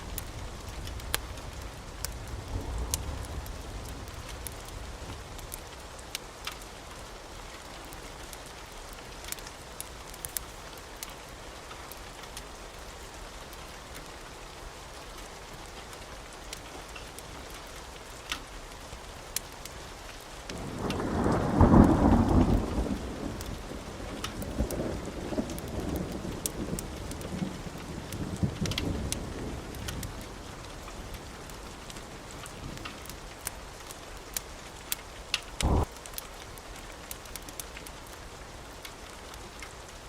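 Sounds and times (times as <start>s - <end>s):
fireplace crackling: 0.0s - 20.9s, 29.7s - 40.0s
steady rain: 0.0s - 40.0s
thunder rumbling: 20.5s - 32.9s, 35.6s - 35.9s.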